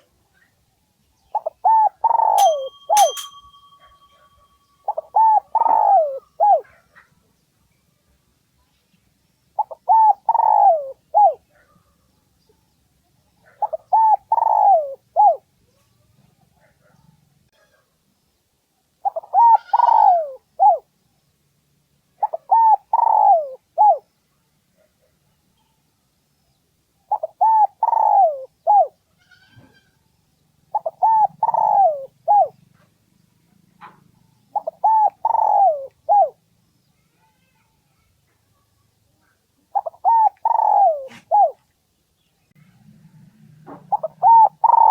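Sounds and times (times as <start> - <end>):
dove cooing: 1.3 - 6.8, 9.6 - 11.4, 13.5 - 15.4, 19.0 - 20.9, 22.2 - 24.1, 27.1 - 29.0, 30.7 - 32.6, 33.8 - 36.4, 39.7 - 41.6, 43.6 - 44.9.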